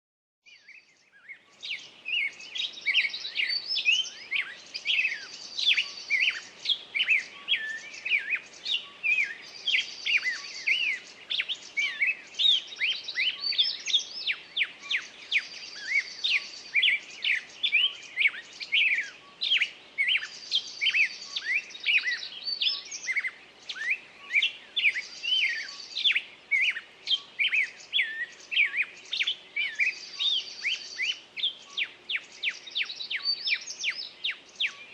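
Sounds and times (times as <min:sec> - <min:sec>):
songbird chirping with buzzy trill: 0:00.5 - 0:34.9.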